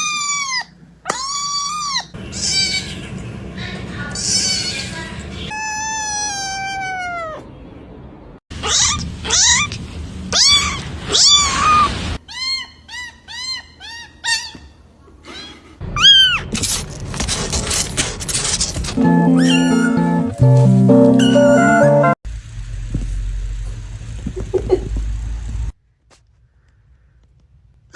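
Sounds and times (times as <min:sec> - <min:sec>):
cat meowing: 0:05.5 - 0:07.5, 0:10.3 - 0:11.9, 0:19.4 - 0:20.1.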